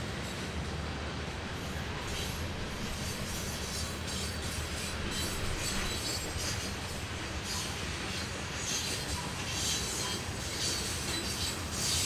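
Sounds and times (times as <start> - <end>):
train wheels rumbling on rails: 0.0 - 12.0
wheel squeals and rattles: 3.2 - 12.0.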